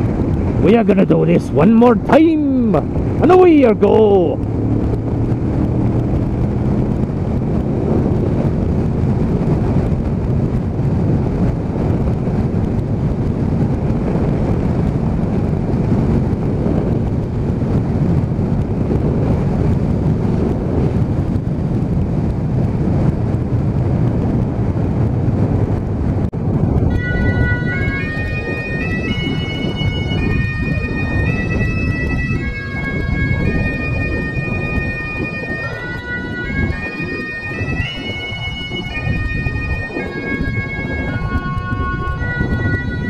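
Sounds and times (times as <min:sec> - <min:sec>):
wind noise on microphone: 0:00.0 - 0:43.0
motorcycle engine droning: 0:01.9 - 0:43.0.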